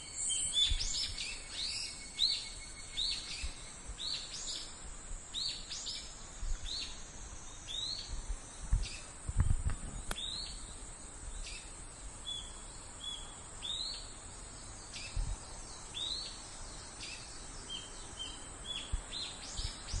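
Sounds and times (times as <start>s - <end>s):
bird chirping: 0.0s - 20.0s
cicadas droning: 0.0s - 20.0s.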